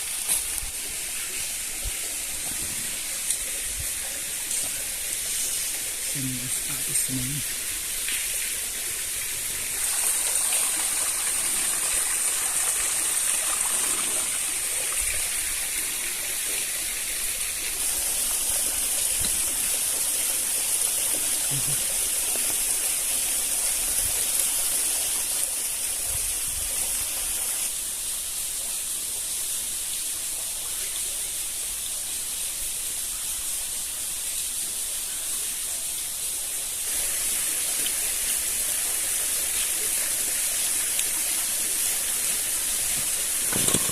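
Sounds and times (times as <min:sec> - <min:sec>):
flowing water rushing: 0:00.0 - 0:30.7, 0:34.0 - 0:43.9.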